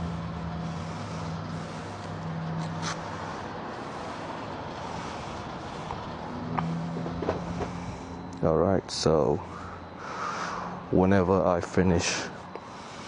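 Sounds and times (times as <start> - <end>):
traffic noise: 0.0 - 13.0
vehicle engine hum: 0.0 - 13.0.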